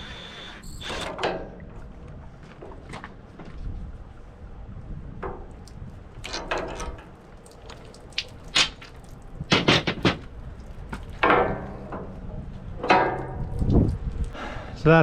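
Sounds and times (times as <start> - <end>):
metal tools clanking: 11.2 - 13.6.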